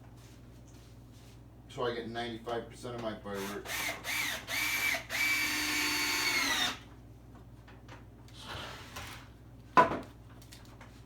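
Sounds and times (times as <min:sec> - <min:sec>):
power drill driving screws: 0:03.4 - 0:06.8.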